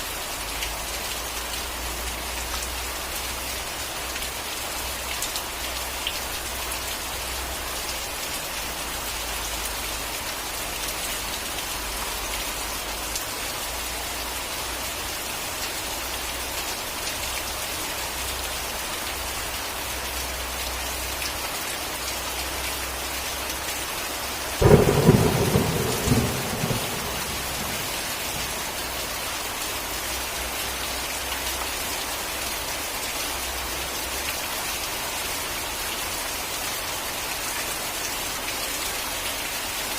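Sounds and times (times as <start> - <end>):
steady rain falling: 0.0 - 39.9
loud thunderclap rumbling: 24.6 - 28.8.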